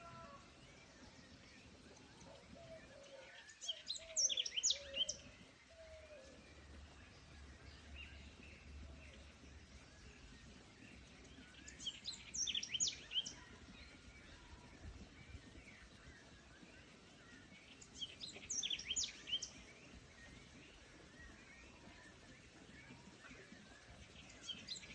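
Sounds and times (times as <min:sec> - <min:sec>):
background hiss: 0:00.0 - 0:24.9
bird chirps: 0:00.0 - 0:24.9
songbird singing: 0:00.0 - 0:24.9.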